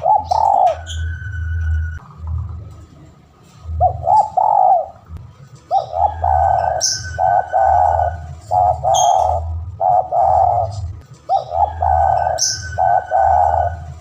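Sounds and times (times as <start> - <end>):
dove cooing: 0.0 - 1.1, 3.6 - 5.1, 5.7 - 14.0
bird chirping: 0.0 - 2.0, 5.6 - 14.0.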